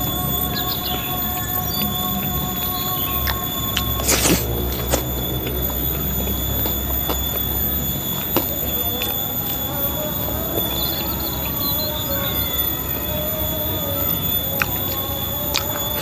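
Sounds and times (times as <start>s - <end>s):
person chewing: 0.0s - 16.0s
steady high-pitched whine: 0.0s - 16.0s
sharp crunches: 0.5s - 9.2s.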